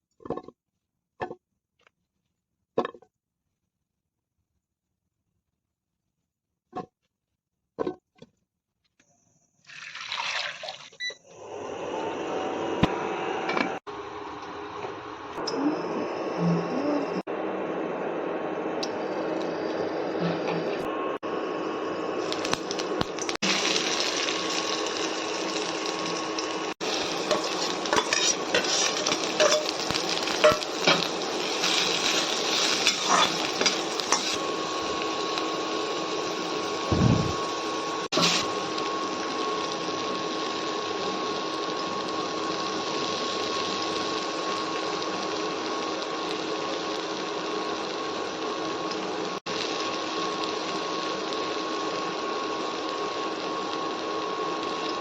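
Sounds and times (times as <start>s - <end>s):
food sizzling in a pan: 21.4s - 55.0s
utensils clinking on a pan: 27.3s - 31.1s
steady hum: 36.6s - 38.1s.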